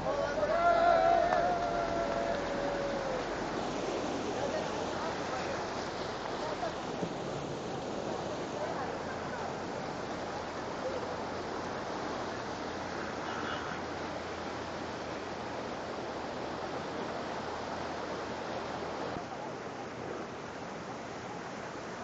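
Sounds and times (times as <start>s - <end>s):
heavy rain: 0.0s - 22.0s
running floodwater: 0.0s - 22.0s.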